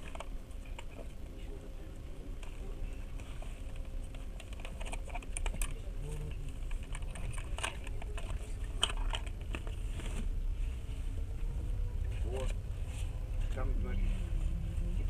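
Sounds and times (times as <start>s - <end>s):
train rumbling: 9.2s - 15.0s.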